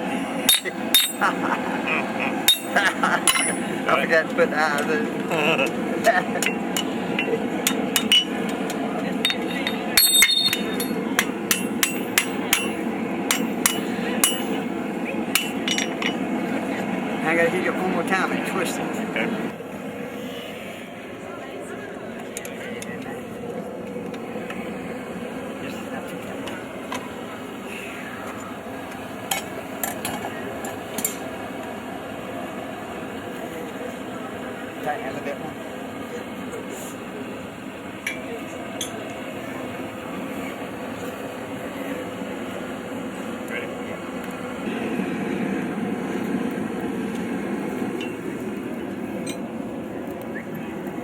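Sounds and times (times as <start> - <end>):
steady background hum: 0.0 - 51.0
metal-on-metal clinks: 0.5 - 1.3, 2.5 - 3.6, 9.2 - 14.6
hammer striking steel on anvil: 0.5 - 1.4, 2.5 - 3.7, 6.4 - 14.7, 15.3 - 16.2.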